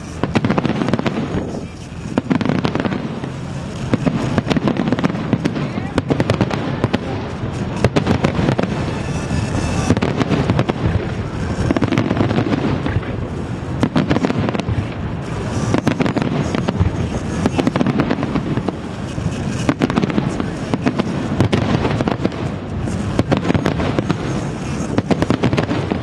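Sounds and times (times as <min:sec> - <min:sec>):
fireworks shells bursting: 0:00.0 - 0:26.0.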